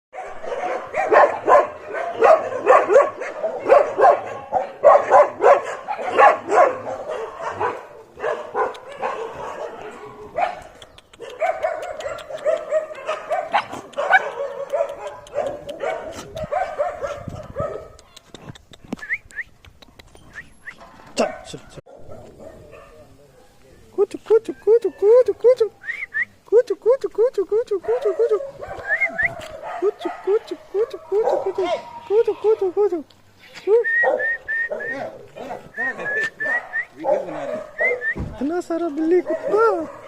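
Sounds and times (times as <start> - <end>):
dog yelping: 0.2 - 18.0, 27.8 - 32.8, 34.0 - 38.2, 39.2 - 40.0.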